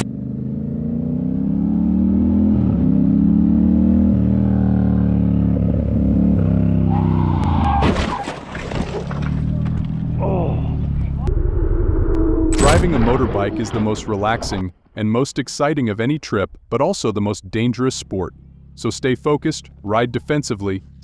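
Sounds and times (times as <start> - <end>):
motorcycle engine accelerating: 0.0 - 7.5.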